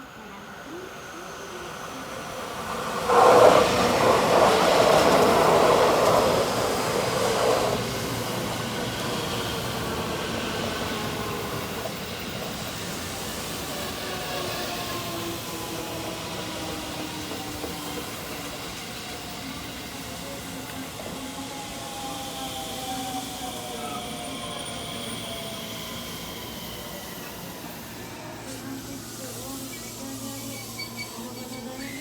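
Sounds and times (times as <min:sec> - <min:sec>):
train motor whine: 0:00.0 - 0:32.0
train wheel and body rush: 0:02.2 - 0:32.0.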